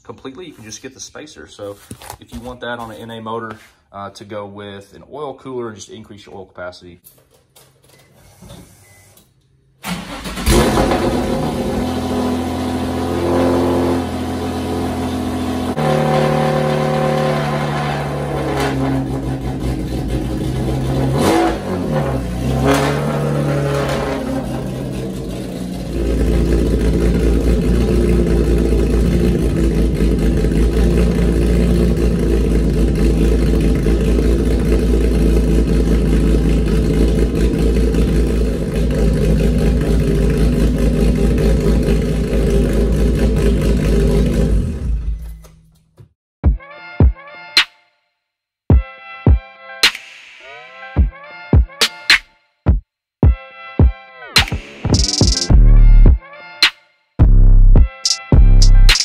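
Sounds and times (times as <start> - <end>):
car engine choppy idle: 24.5 - 44.5.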